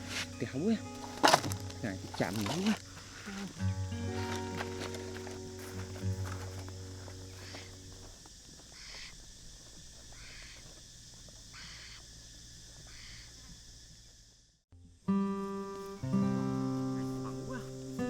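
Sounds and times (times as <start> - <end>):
faint outdoor background: 0.0 - 18.0
soft bird calls: 6.8 - 10.8, 11.4 - 12.2, 12.8 - 13.6.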